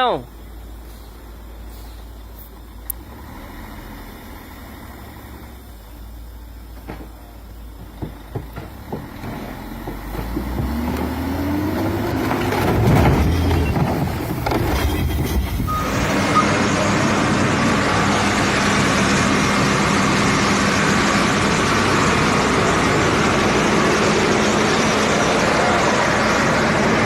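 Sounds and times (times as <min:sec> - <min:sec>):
truck engine rumbling: 0:00.0 - 0:27.0
short knocks: 0:07.8 - 0:11.0.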